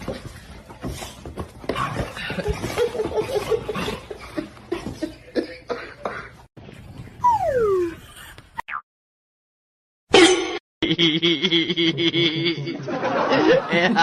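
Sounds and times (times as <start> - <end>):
person laughing: 10.8 - 14.0.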